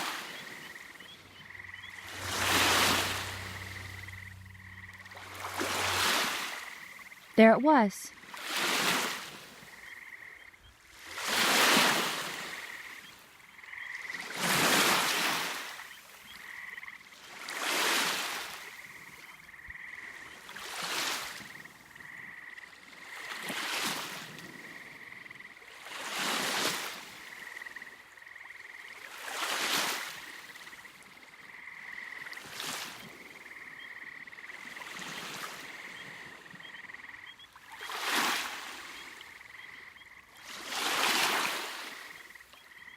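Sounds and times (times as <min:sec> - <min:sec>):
small waves washing onto beach: 0:00.0 - 0:09.8, 0:10.8 - 0:13.0, 0:14.0 - 0:16.3, 0:17.2 - 0:19.2, 0:20.1 - 0:21.9, 0:22.7 - 0:25.0, 0:25.7 - 0:27.8, 0:28.8 - 0:31.4, 0:32.1 - 0:33.5, 0:34.6 - 0:36.6, 0:37.5 - 0:39.5, 0:40.3 - 0:42.5.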